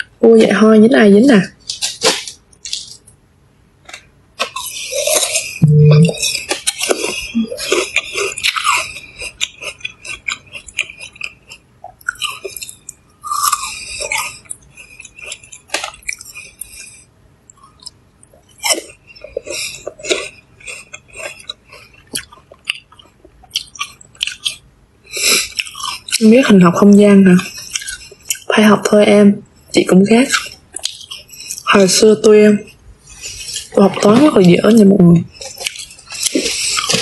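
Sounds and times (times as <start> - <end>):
crunching and chewing fruit: 1.5 - 3.2, 3.8 - 29.0, 29.6 - 37.0
brief low hum: 5.6 - 6.1.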